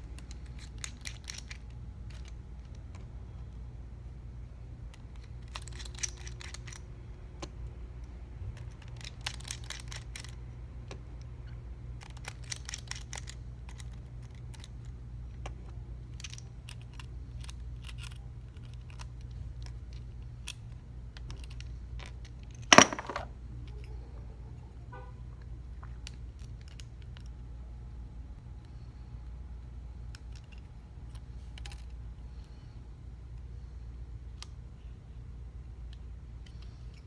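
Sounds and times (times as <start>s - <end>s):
steady low hum: 0.0s - 37.0s
small tools clicking on phone: 4.9s - 11.3s, 12.0s - 23.1s, 35.8s - 37.0s.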